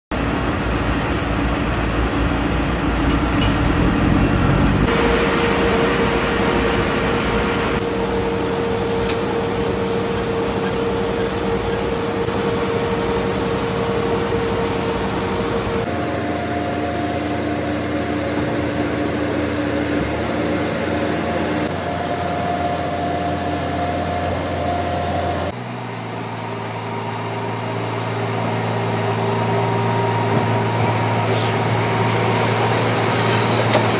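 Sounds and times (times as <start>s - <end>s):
farm machinery humming: 0.1s - 25.6s, 27.0s - 33.9s.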